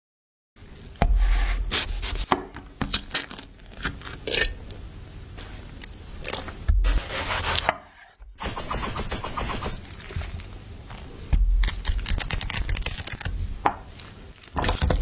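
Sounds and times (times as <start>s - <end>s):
heavy low thump: 1.0s - 1.7s, 11.3s - 11.6s
rubbing and scraping: 1.0s - 2.4s, 6.8s - 10.3s.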